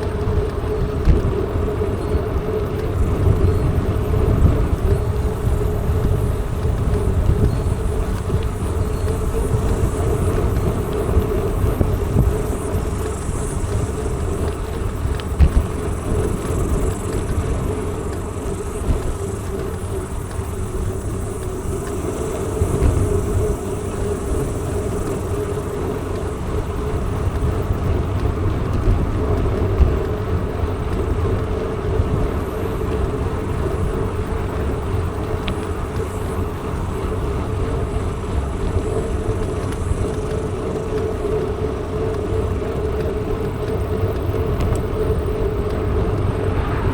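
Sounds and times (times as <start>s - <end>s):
bicycle tyre rumble: 0.0s - 46.9s
steady hum: 0.0s - 46.9s
wind on microphone: 0.0s - 46.9s
faint clicks: 38.6s - 46.9s.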